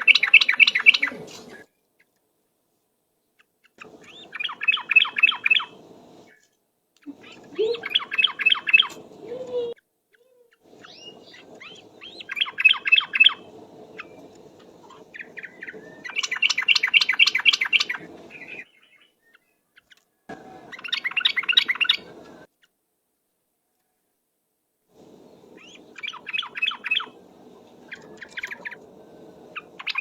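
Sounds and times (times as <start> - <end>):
bird chattering trills: 0.0 - 1.6, 3.8 - 6.4, 7.1 - 19.1, 20.4 - 22.4, 25.2 - 30.0.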